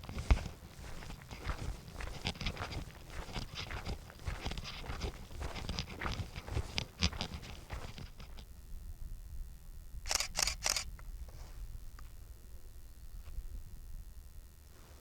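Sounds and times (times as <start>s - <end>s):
footsteps on a path: 0.0s - 8.5s.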